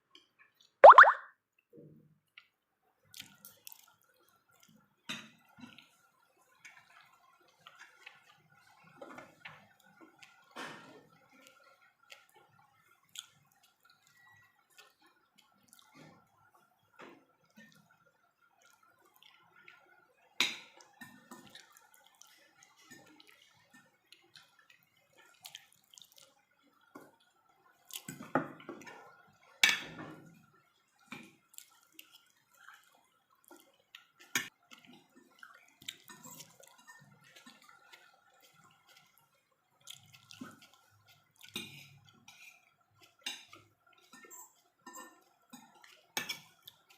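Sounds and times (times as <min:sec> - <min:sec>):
wet chewing and mouth smacking: 0:13.0 - 0:13.8, 0:25.2 - 0:26.4, 0:31.5 - 0:34.1, 0:34.7 - 0:39.2, 0:39.8 - 0:43.6.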